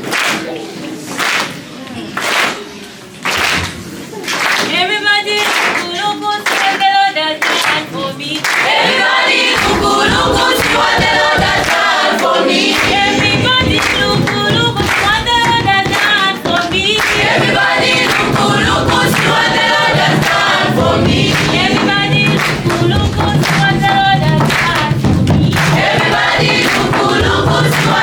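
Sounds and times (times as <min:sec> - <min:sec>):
group singing worship song: 0:04.7 - 0:28.0
backing music with bass line: 0:16.7 - 0:28.0.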